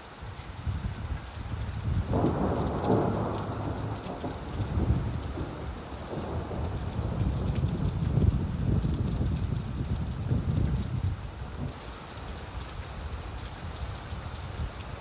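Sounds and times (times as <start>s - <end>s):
steady rainfall: 0.0s - 15.0s
low roll of thunder: 1.6s - 11.8s.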